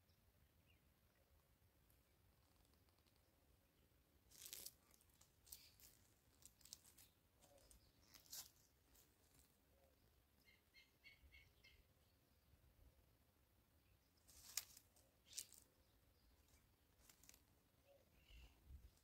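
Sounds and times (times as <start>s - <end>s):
faint rustles: 4.3s - 9.6s, 14.2s - 15.7s, 16.4s - 17.6s
bird chirping: 6.6s - 12.9s, 13.8s - 19.0s.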